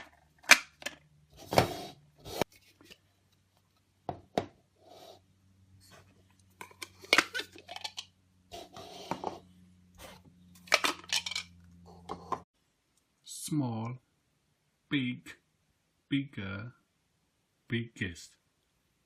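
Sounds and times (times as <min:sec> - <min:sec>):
plastic cups clattering: 0:06.5 - 0:08.1, 0:10.6 - 0:11.5.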